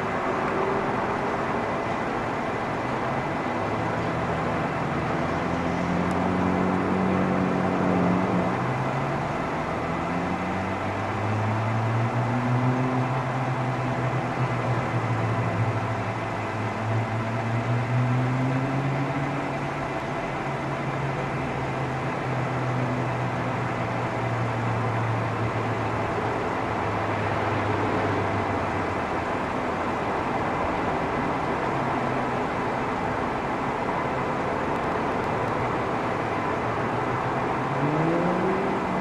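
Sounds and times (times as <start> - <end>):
city traffic noise: 0.0 - 39.0
low engine hum: 0.0 - 39.0
vehicle engine accelerating: 3.6 - 29.3, 35.0 - 39.0.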